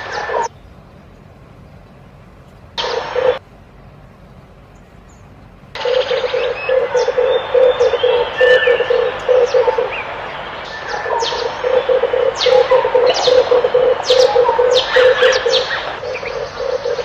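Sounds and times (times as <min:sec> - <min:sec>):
dove cooing: 0:00.0 - 0:00.5, 0:02.8 - 0:03.4, 0:05.8 - 0:17.0
small birds chirping: 0:00.0 - 0:17.0
steady hiss: 0:00.0 - 0:17.0.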